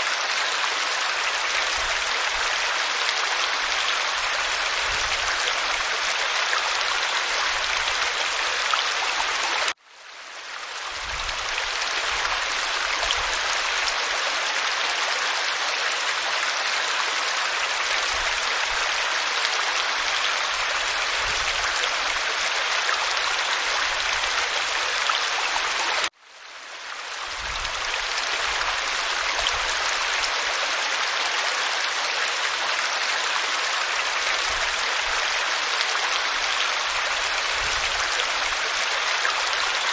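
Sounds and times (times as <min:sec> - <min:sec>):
waterfall rushing: 0:00.0 - 0:09.8.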